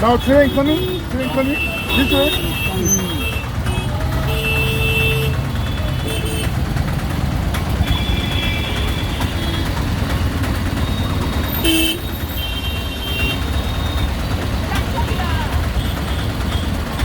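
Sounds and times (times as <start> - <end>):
car horn beeps: 0.0 - 6.6, 7.7 - 14.1
low rumble of vehicles: 0.0 - 17.0.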